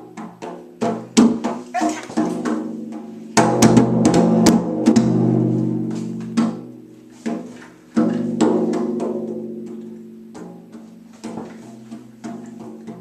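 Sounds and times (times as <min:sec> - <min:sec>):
hand drum ringing strokes: 0:04.8 - 0:13.0.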